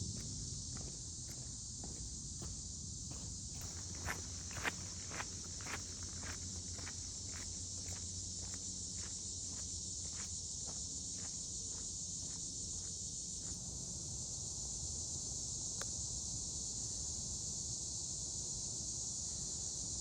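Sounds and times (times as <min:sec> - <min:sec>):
chorus of insects: 0:00.0 - 0:20.0
footsteps on forest trail: 0:00.2 - 0:13.6.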